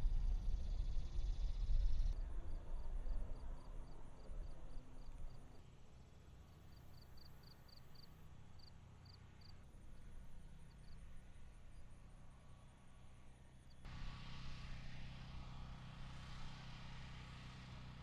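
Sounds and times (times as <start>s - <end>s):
low rumble: 0.0s - 3.2s
insects chirping in a steady pulse: 0.0s - 5.6s, 6.5s - 11.9s
faint high insect chirping: 6.7s - 9.5s.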